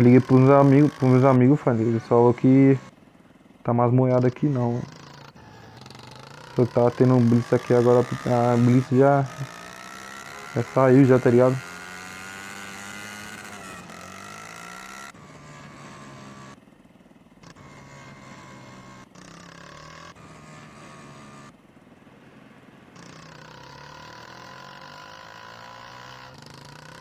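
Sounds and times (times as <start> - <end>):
motorcycle engine running: 0.0 - 27.0
wind and road noise: 5.4 - 27.0.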